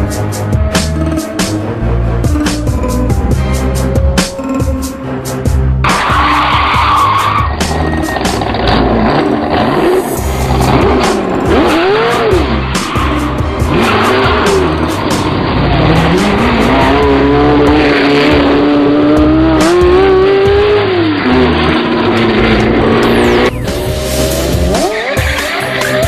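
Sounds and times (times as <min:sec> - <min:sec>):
music with pulsing bass: 0:00.0 - 0:26.0
sports car engine revving: 0:07.7 - 0:26.0.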